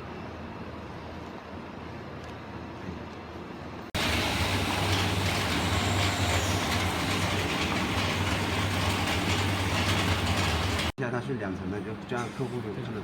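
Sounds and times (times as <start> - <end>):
machine humming and hissing: 4.0 - 11.0.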